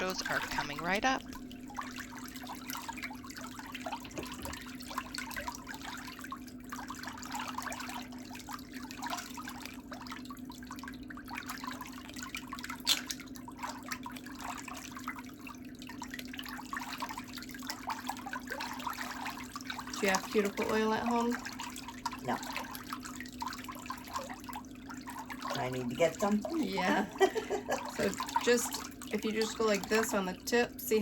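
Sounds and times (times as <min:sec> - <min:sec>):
trickling water with crackles: 0:00.0 - 0:31.0.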